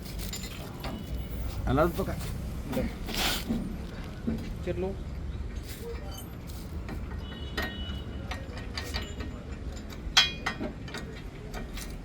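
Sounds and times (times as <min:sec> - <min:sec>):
metal tools clinking: 0:00.0 - 0:01.2, 0:05.6 - 0:12.0.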